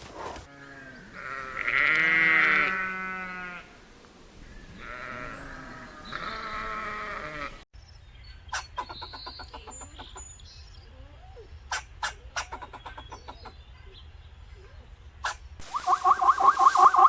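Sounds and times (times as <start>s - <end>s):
sheep bleating: 0.5s - 3.7s, 4.7s - 7.6s.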